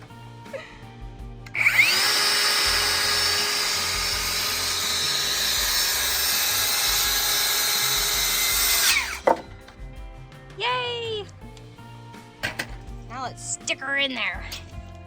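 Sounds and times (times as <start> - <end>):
electric power saw whining: 1.5 - 9.8.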